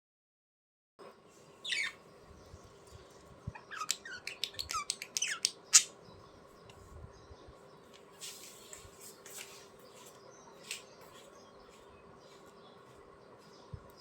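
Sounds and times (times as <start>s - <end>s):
faint steady hum: 1.0s - 14.0s
budgerigars chirping and squawking: 1.6s - 6.7s.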